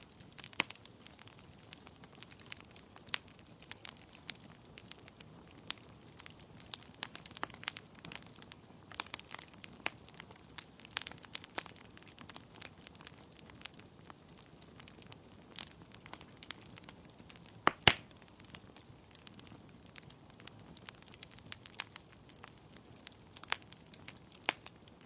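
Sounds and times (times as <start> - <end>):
logs crackling in a fireplace: 0.0 - 25.0.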